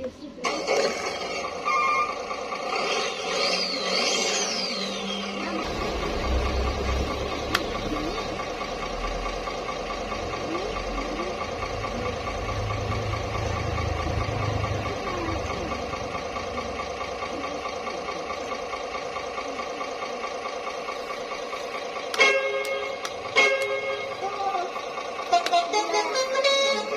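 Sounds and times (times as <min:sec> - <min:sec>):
simulated engine idling: 0:00.0 - 0:26.9
deep rumble: 0:05.2 - 0:17.0.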